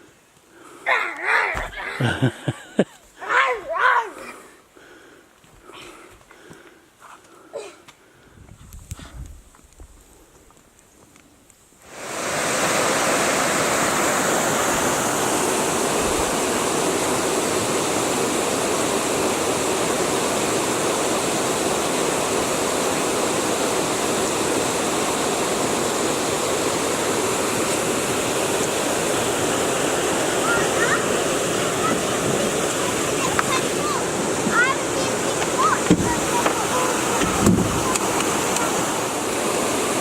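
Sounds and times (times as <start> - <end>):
roar of white water: 11.9 - 40.0.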